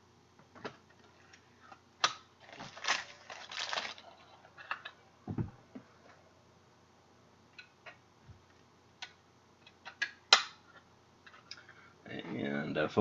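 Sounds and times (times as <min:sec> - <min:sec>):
crinkly plastic rustling: 0:02.4 - 0:04.5
soft low thumps: 0:05.3 - 0:05.6.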